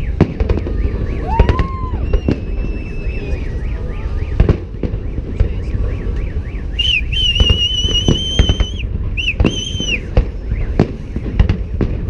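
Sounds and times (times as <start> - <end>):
fireworks bangs and crackles: 0.0 - 12.0
high steady whistle: 0.7 - 4.4, 6.2 - 10.8.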